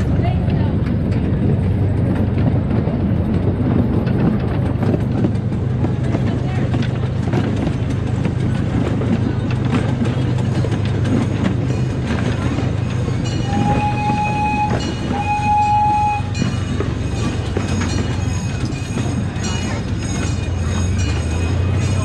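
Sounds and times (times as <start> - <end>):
miniature train rumbling on track: 0.0 - 22.0
wheels clicking over rail joints: 0.0 - 22.0
train horn blasts: 13.4 - 16.6.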